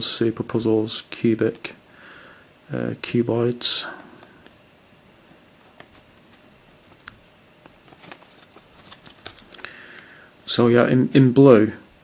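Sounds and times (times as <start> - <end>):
plastic puzzle clicks and rustles: 5.6 - 10.1.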